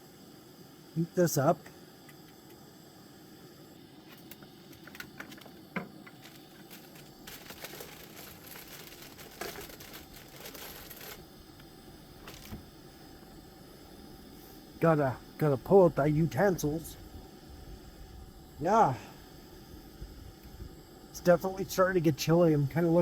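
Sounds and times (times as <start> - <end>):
plastic packaging crinkling: 4.2 - 11.3, 12.2 - 12.6.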